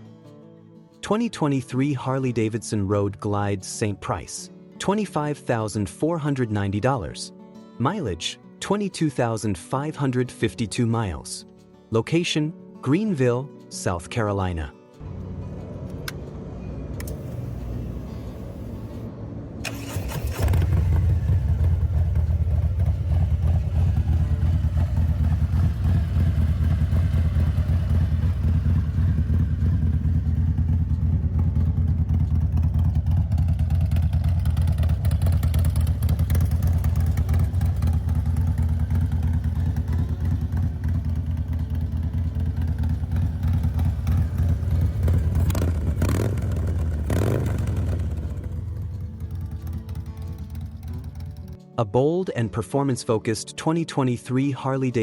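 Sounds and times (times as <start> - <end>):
motorcycle engine revving: 17.0 - 51.6
motorcycle engine idling: 19.7 - 51.6.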